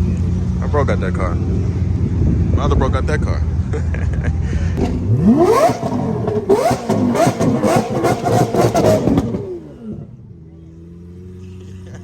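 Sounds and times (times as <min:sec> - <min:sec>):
exhaust crackling: 0:04.3 - 0:11.9
sports car engine revving: 0:04.8 - 0:12.0.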